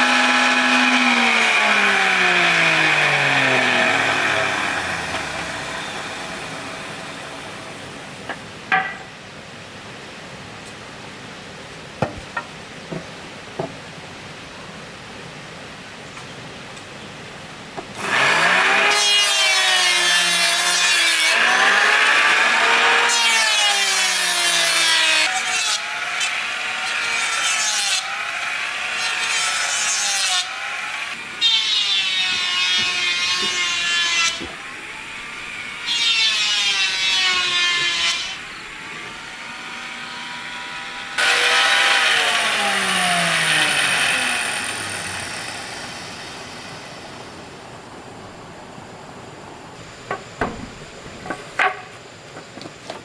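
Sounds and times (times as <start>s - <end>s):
power tool cutting wood: 0.0s - 7.8s, 18.0s - 47.2s.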